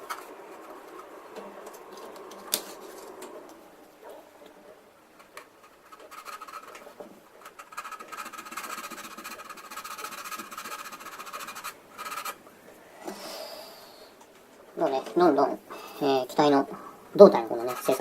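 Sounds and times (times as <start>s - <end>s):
sanding plastic: 0.0s - 3.5s, 5.1s - 12.5s, 17.2s - 18.0s.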